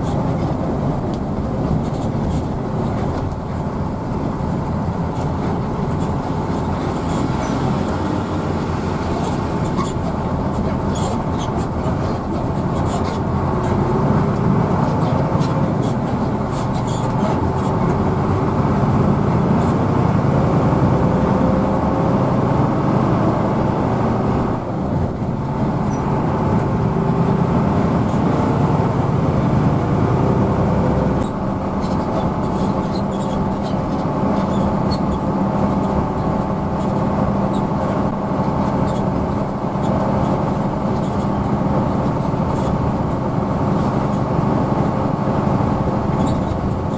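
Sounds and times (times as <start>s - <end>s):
bus engine and road rumble: 0.0s - 46.9s.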